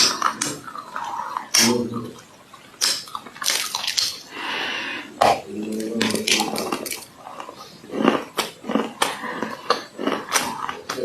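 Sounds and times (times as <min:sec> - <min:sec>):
crunchy clay being chewed: 0:05.2 - 0:11.0.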